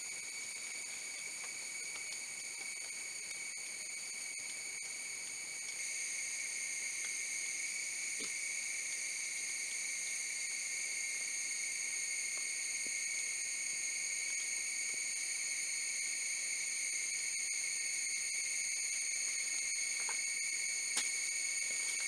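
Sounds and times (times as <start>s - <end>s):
insect chorus drone: 0.0s - 22.0s.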